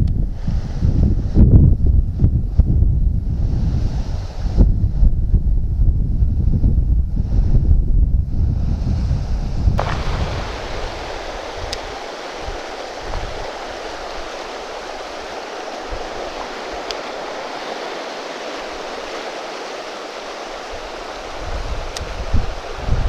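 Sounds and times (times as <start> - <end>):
river rushing over rocks: 9.8 - 23.0
faint short ticks: 16.8 - 17.0.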